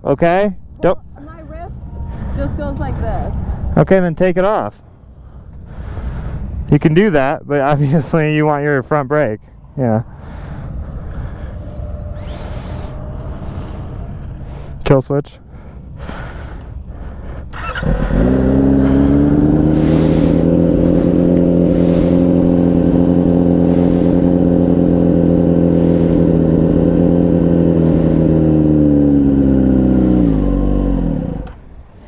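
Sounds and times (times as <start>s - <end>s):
motorcycle engine idling: 15.6s - 32.0s.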